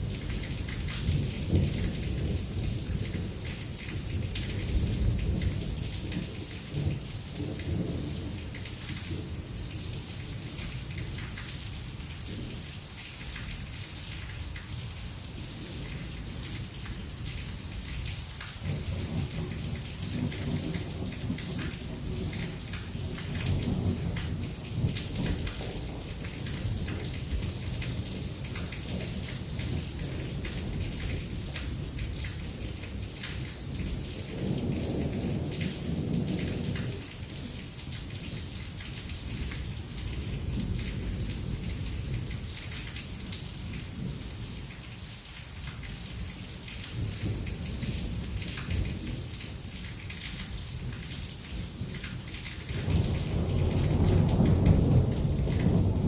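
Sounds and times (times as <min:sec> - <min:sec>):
heavy rain pouring: 0:00.0 - 0:56.0
thunder rumbling: 0:34.2 - 0:37.4, 0:52.8 - 0:56.0.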